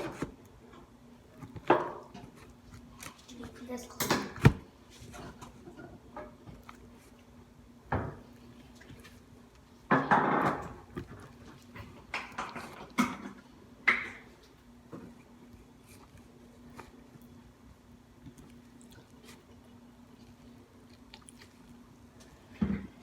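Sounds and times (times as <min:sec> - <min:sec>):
dishes knocking and clicking: 0:09.9 - 0:10.8.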